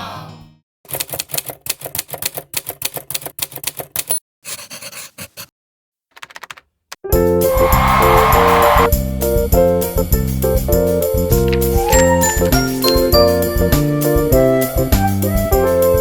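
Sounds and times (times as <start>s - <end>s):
music: 0.0s - 0.6s, 7.1s - 16.0s.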